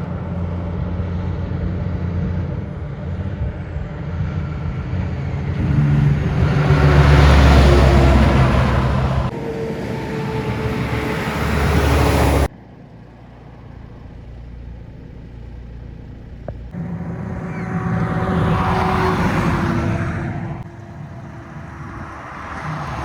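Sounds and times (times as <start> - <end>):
heavy trucks passing: 1.0 - 12.5, 16.6 - 23.0.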